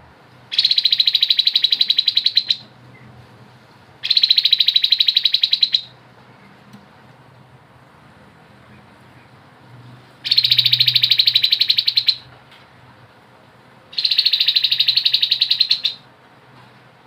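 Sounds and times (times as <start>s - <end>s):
bird rattling trills: 0.5s - 2.6s, 4.0s - 5.9s, 10.2s - 12.2s, 13.9s - 16.0s.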